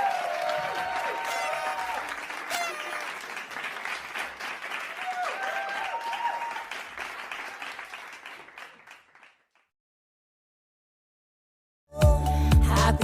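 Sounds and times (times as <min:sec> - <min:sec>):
children's high shouts: 0:00.0 - 0:03.2
children cheering and clapping: 0:00.0 - 0:09.6.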